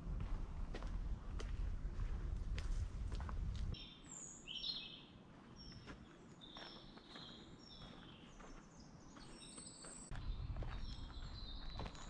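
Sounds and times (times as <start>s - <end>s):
songbirds singing: 3.8s - 12.0s.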